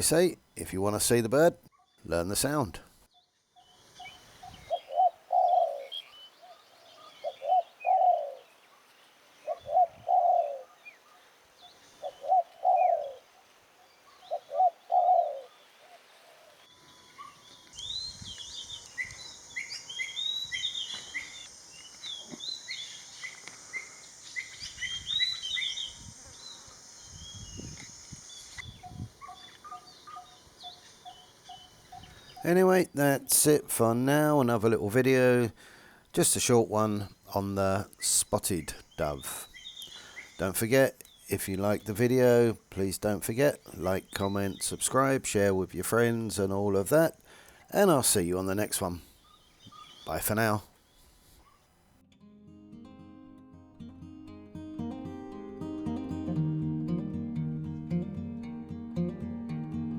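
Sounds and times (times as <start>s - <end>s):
birds chirping and twittering: 0.0s - 51.9s
dove cooing: 4.0s - 8.5s, 9.4s - 11.3s, 12.0s - 17.4s.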